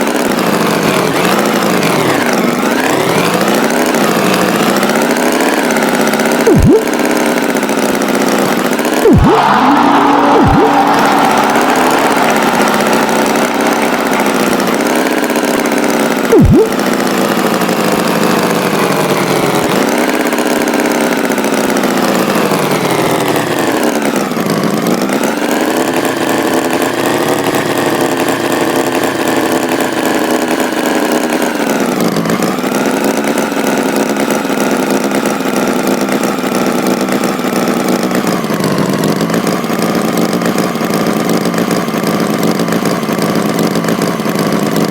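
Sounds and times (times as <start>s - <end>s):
tractor engine running: 0.0s - 44.9s
short loud blip: 6.5s - 6.9s, 9.0s - 14.8s, 16.3s - 16.8s.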